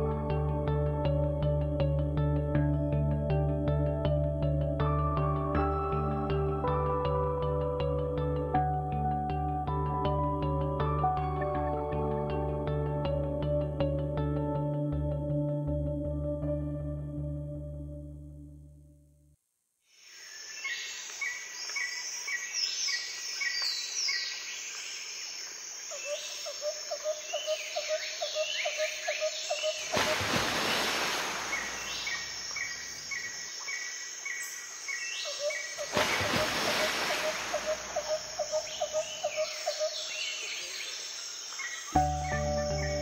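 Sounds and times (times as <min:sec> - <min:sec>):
birds chirping: 0:27.2 - 0:35.9.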